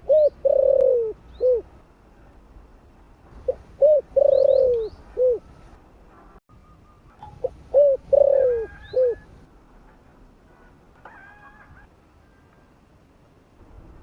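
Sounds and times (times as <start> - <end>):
dove cooing: 0.0 - 1.7, 3.4 - 5.5, 7.4 - 9.4.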